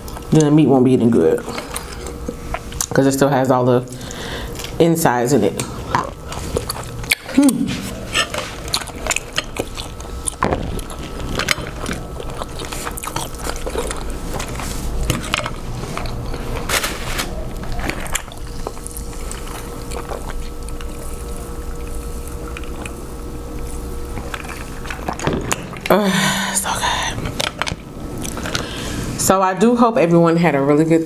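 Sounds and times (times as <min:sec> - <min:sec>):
steady low hum: 0:00.0 - 0:31.0
crab shell cracking and chewing: 0:05.6 - 0:16.7, 0:17.4 - 0:26.0, 0:26.6 - 0:28.8.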